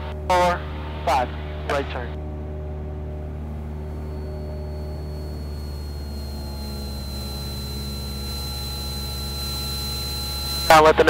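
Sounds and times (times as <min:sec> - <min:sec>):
airplane engine droning: 0:00.0 - 0:11.0
thin high whine: 0:02.9 - 0:11.0.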